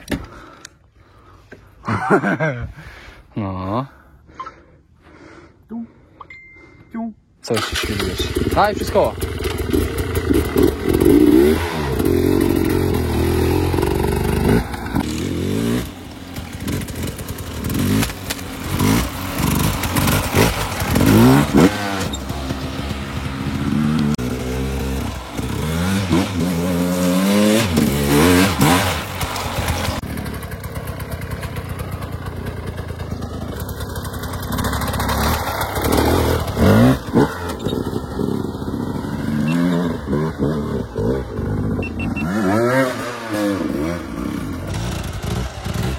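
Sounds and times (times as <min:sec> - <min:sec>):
dirt bike engine revving: 0:07.6 - 0:30.2, 0:34.0 - 0:45.9.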